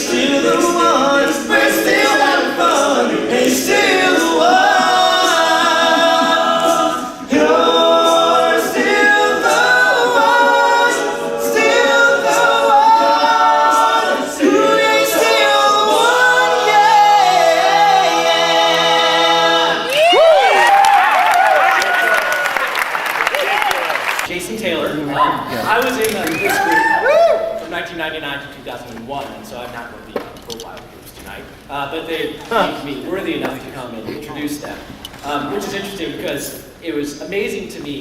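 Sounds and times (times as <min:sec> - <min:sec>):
male vocal group singing: 0:00.0 - 0:19.9
audience whooping and cheering: 0:19.8 - 0:24.3, 0:26.3 - 0:27.7.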